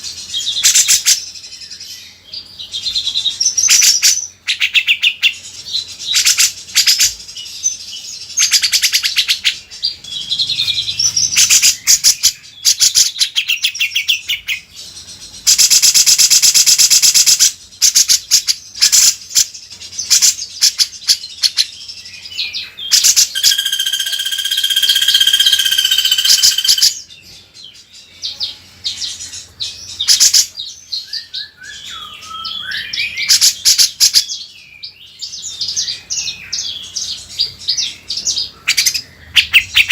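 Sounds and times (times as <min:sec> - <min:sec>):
bird chirping and trilling: 0:00.0 - 0:39.9
harsh buzzing rattle: 0:09.8 - 0:13.2, 0:23.0 - 0:27.0
whistled bird notes: 0:21.6 - 0:27.2, 0:29.9 - 0:37.2.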